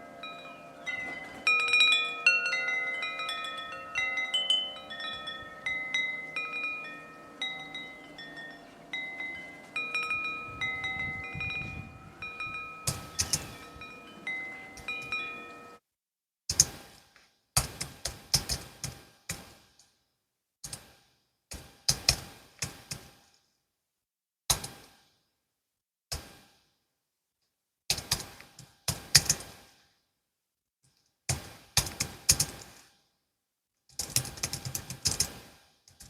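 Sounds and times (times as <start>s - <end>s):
wind chimes ringing: 0.0s - 15.8s.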